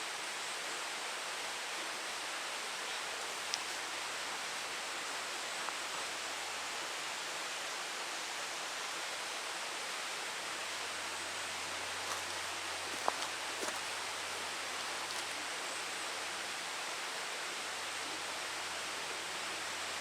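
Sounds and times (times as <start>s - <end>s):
outdoor background hiss: 0.0s - 20.0s
faint ticks: 3.4s - 3.8s.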